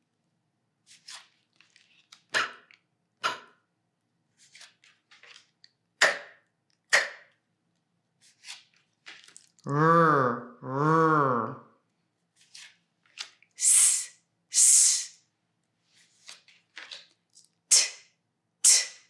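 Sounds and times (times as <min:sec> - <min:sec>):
person saying phonics sounds: 0:09.6 - 0:11.7, 0:13.6 - 0:15.1.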